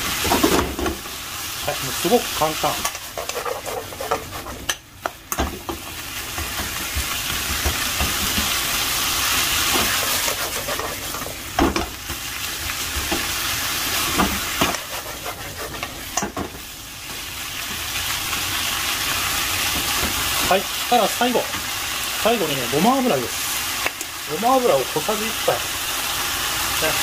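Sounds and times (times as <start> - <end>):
food sizzling in frying pan: 0.0 - 27.0
utensil knocking and scraping pan: 2.8 - 5.8, 9.7 - 11.9, 14.1 - 16.5.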